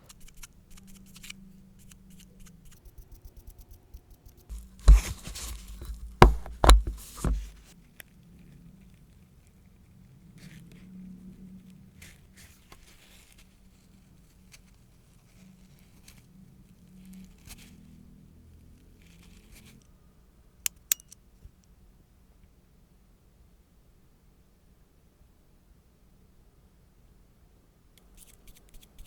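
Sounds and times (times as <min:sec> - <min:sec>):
soft scraping and rustling: 0:04.4 - 0:18.0.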